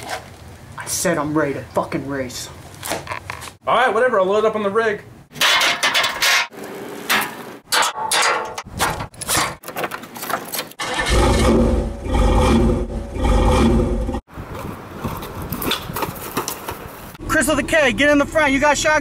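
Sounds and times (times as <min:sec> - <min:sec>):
clattering and scraping: 0:05.4 - 0:12.6
loud engine rumbling: 0:10.8 - 0:14.3, 0:17.2 - 0:19.0.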